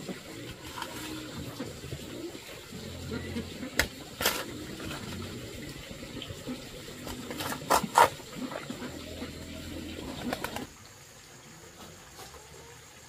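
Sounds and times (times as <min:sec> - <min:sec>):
low cooing bird calls: 0:08.3 - 0:10.7.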